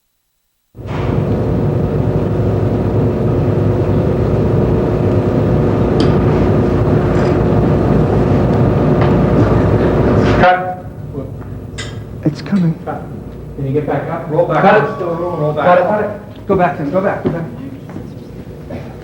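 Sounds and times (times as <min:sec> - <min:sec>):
loud rumbling machinery drone: 0:00.8 - 0:19.0.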